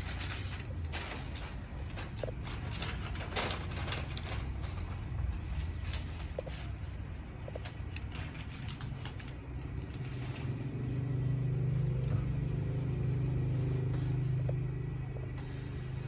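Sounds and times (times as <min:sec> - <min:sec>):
vehicle engine humming: 0:09.3 - 0:16.0.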